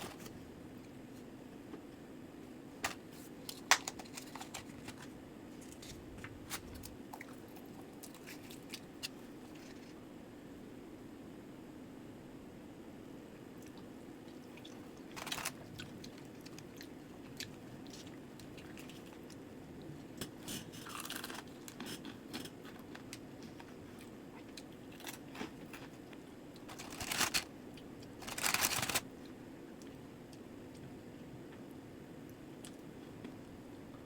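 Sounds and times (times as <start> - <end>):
low background hum: 0.0 - 34.0
crunchy fried chicken chewing: 20.6 - 29.3.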